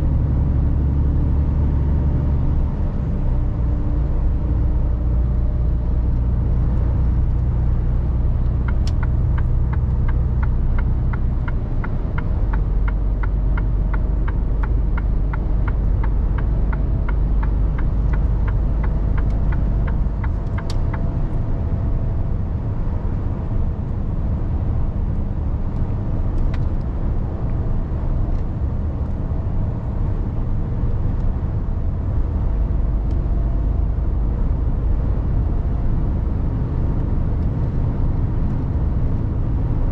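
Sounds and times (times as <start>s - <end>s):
truck diesel engine: 0.0s - 39.8s
road rumble: 0.0s - 39.9s
turn signal ticking: 8.4s - 21.8s.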